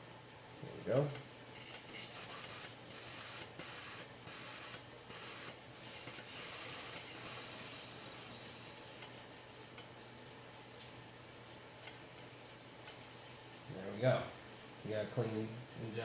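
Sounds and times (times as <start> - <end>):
cleaner spray hissing: 2.0 - 9.6.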